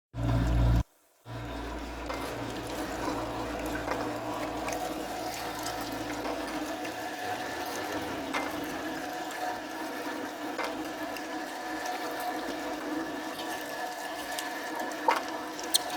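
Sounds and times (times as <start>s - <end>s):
low hum: 0.2s - 6.2s
meat mincer motor whining: 0.2s - 15.9s.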